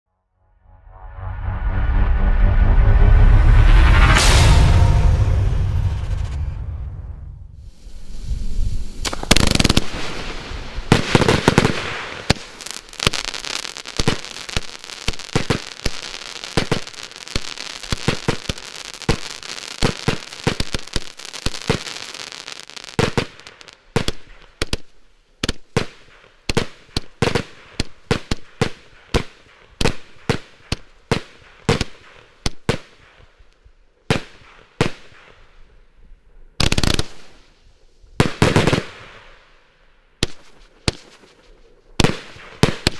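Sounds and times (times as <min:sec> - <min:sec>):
firework bangs: 0:07.6 - 0:24.8, 0:36.6 - 0:37.6, 0:38.2 - 0:39.4, 0:40.2 - 0:42.9
firework crackling: 0:07.6 - 0:33.1, 0:36.6 - 0:39.4, 0:40.2 - 0:42.9
firework shots: 0:07.6 - 0:33.2, 0:34.1 - 0:35.5, 0:36.6 - 0:39.5, 0:40.2 - 0:42.9.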